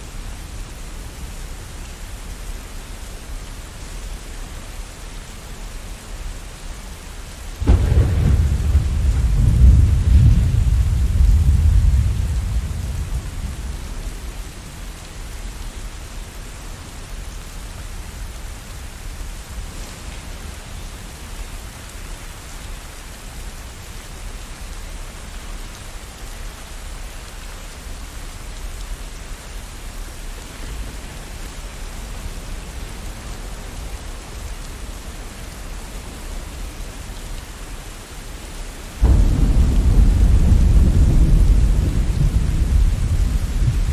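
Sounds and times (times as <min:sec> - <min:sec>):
steady rain hiss: 0:00.0 - 0:43.9
thunder rumble: 0:07.6 - 0:14.9, 0:39.0 - 0:43.9.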